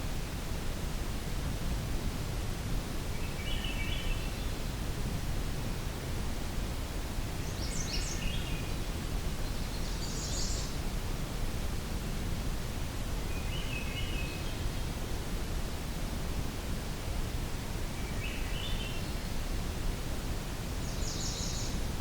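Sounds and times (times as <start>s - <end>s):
background hiss and rustle: 0.0s - 22.0s
songbird singing: 3.1s - 4.6s, 7.4s - 10.8s, 13.1s - 14.8s, 17.8s - 19.7s, 20.8s - 22.0s.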